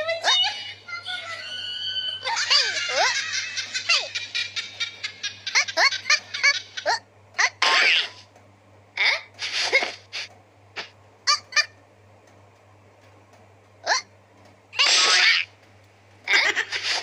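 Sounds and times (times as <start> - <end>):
high-pitched squealing laughter: 1.2 - 8.2, 11.3 - 11.8, 14.8 - 15.5, 16.3 - 17.0.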